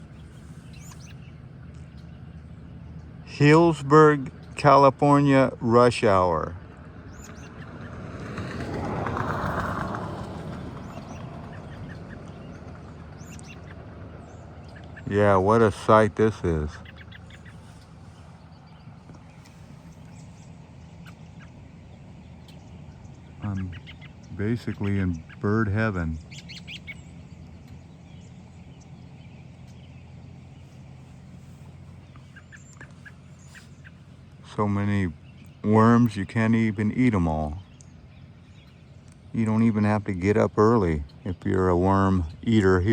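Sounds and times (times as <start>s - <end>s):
birds calling: 0.0s - 42.9s
steady low hum: 0.0s - 42.9s
vehicle passing: 0.0s - 42.9s.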